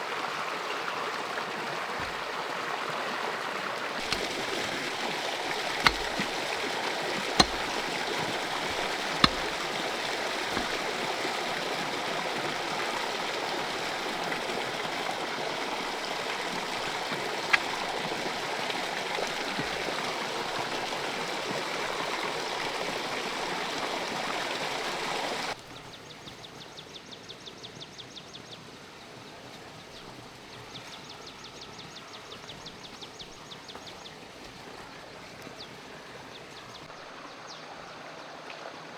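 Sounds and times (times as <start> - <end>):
water running steadily: 0.0 - 25.7
sharp clicks or knocks: 5.5 - 6.5, 7.4 - 9.7.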